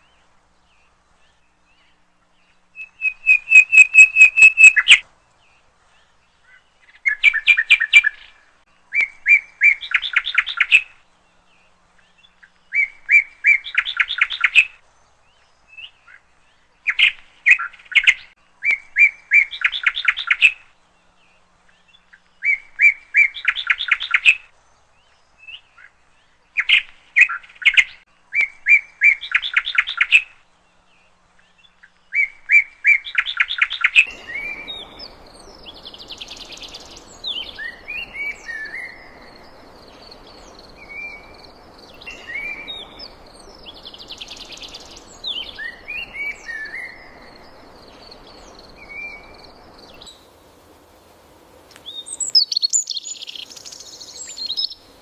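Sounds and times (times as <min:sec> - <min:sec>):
bird chirps: 0:00.0 - 0:05.0, 0:31.4 - 0:50.3, 0:51.7 - 0:55.0
songbird singing: 0:00.0 - 0:55.0
steady rushing noise: 0:34.1 - 0:52.2.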